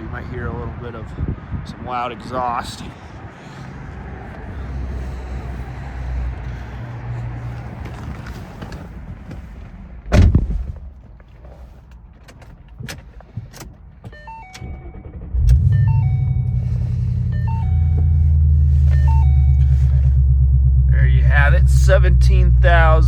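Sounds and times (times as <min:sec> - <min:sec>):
car engine rumbling: 0:00.0 - 0:23.0
car door shutting: 0:10.1 - 0:10.9.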